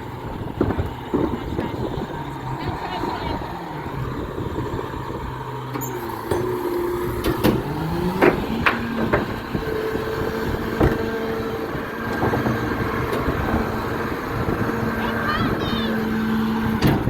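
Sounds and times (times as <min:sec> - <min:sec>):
garbage truck engine: 0:00.0 - 0:17.0
sharp knocks and bangs: 0:07.2 - 0:09.4.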